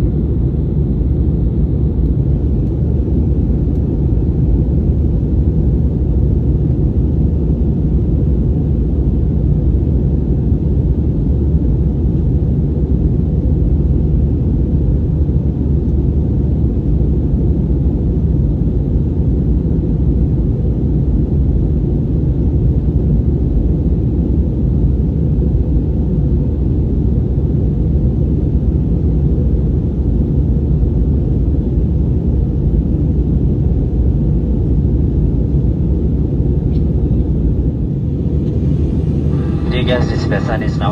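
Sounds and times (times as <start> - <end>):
airplane cabin engine rumble: 0.0 - 13.6, 32.4 - 40.9.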